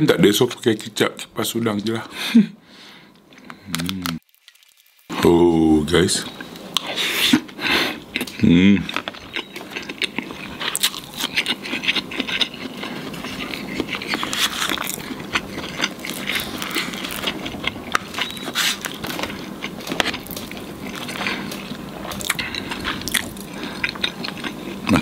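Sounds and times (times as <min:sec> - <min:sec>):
chewing fried chicken: 0:06.4 - 0:25.0.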